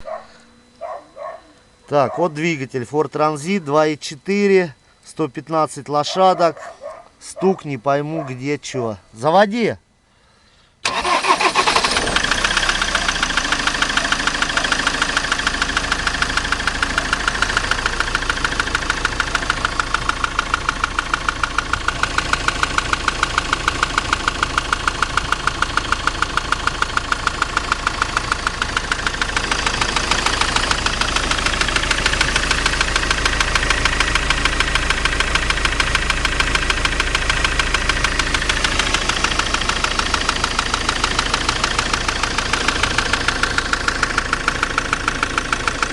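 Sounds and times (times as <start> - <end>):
diesel engine cranking and starting: 10.4 - 45.9
engine idling with regular knock: 12.6 - 45.9.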